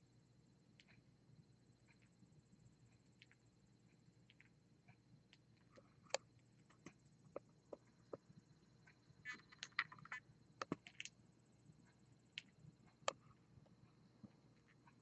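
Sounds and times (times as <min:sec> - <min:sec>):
birds pecking at food in a dish: 0:09.2 - 0:11.1.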